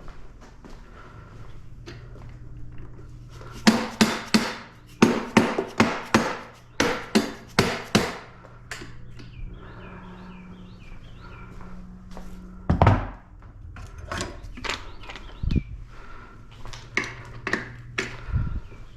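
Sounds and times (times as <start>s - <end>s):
hammer striking: 3.6s - 8.3s.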